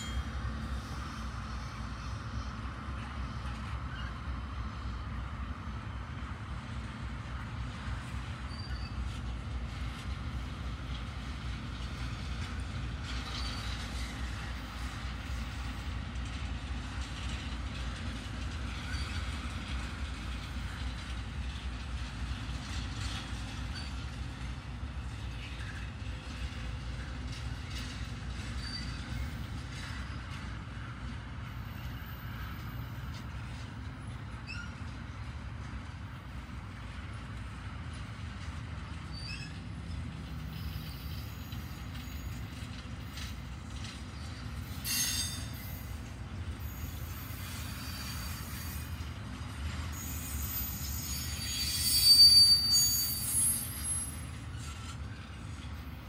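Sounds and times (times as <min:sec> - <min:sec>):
faint high wheel squeals: 0:00.0 - 0:04.9, 0:08.0 - 0:09.2, 0:12.5 - 0:16.0, 0:18.7 - 0:20.9, 0:22.7 - 0:35.4, 0:38.8 - 0:56.0
freight train wheels rumbling: 0:00.0 - 0:56.0.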